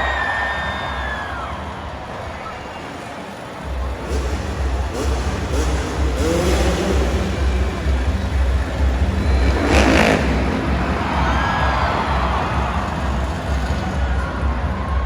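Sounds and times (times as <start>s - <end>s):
motorcycle engines revving: 0.0s - 15.0s
music with bass beat: 3.6s - 15.0s.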